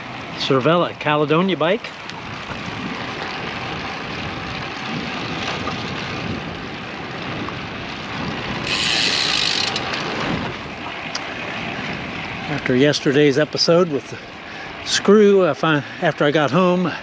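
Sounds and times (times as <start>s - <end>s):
bicycle road noise: 0.0s - 17.0s
wind on microphone: 2.1s - 12.5s.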